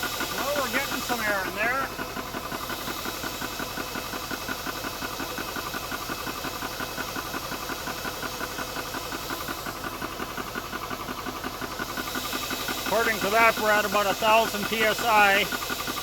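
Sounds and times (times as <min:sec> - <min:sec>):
air compressor pulsing and hissing: 0:00.0 - 0:16.0
cooling fan running: 0:00.0 - 0:16.0.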